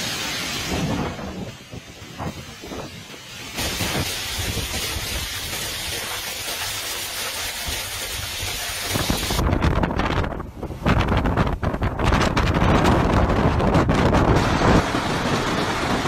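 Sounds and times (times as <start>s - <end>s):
heavy rain: 0.0s - 9.5s, 14.2s - 16.0s
wind gusts buffeting microphone: 0.5s - 6.1s, 8.2s - 16.0s.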